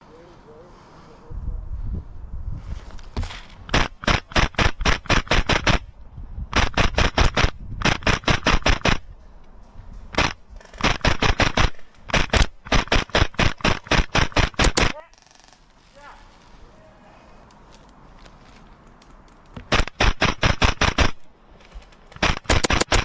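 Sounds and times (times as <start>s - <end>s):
airsoft gun rapid firing: 3.6s - 5.9s, 6.5s - 9.1s, 10.1s - 15.0s, 19.7s - 21.3s, 22.2s - 23.0s.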